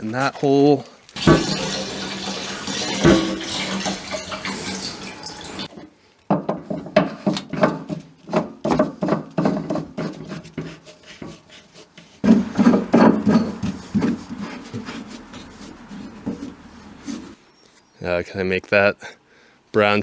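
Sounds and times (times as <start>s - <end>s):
liquid glugging from a can: 1.2s - 5.7s, 12.2s - 17.4s.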